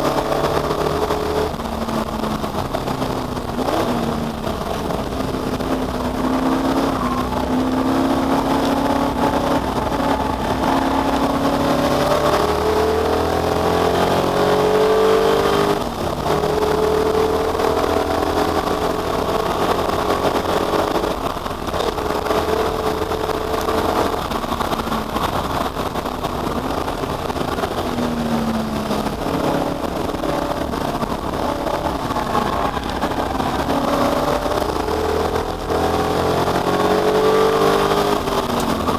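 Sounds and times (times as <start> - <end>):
race car engine accelerating: 0.0 - 38.9.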